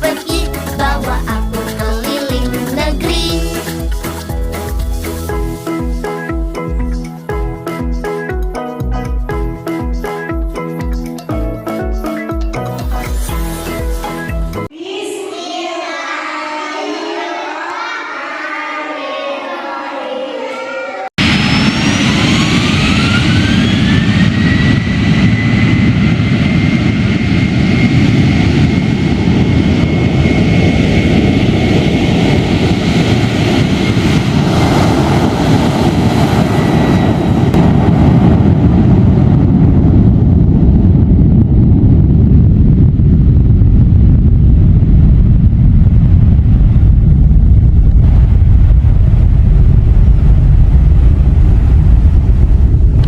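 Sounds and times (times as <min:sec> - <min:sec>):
jet engine roar with whine: 0:20.5 - 0:53.0
deep loud rumble: 0:21.2 - 0:53.0.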